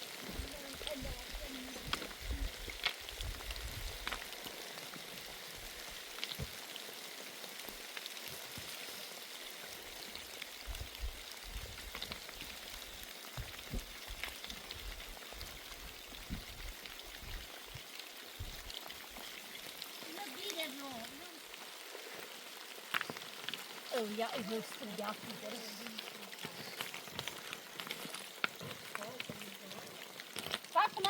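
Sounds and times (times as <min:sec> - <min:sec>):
steady rain falling: 0:00.0 - 0:31.0
rain drop ticks: 0:00.3 - 0:05.0, 0:10.0 - 0:31.0
dull low thumps: 0:10.6 - 0:11.9, 0:15.8 - 0:17.5.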